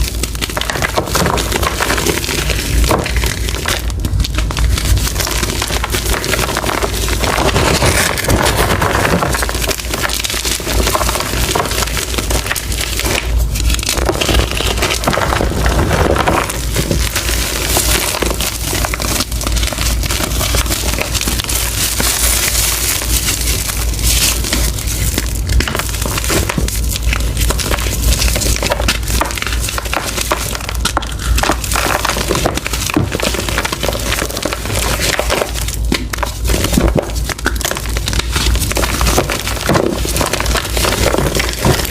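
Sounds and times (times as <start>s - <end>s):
chalk crunching by hand: 4.2s - 41.9s.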